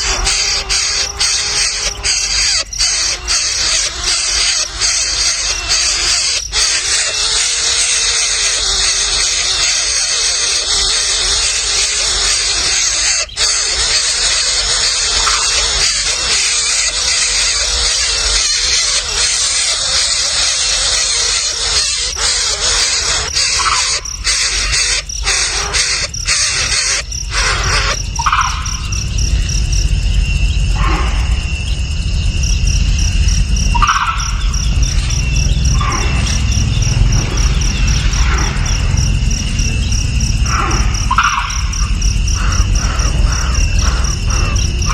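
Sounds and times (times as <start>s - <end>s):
bird chirps: 0.0s - 44.9s
insects trilling: 0.0s - 44.9s
low rumble: 28.0s - 44.9s.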